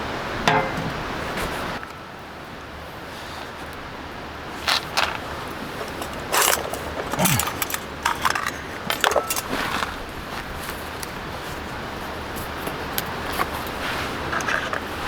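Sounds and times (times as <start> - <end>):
small metal objects clinking: 4.8 - 10.0.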